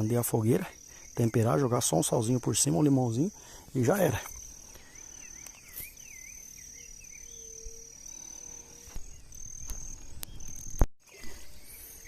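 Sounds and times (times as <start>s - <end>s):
insects trilling: 0.0s - 12.0s
bird chirps: 3.2s - 12.0s.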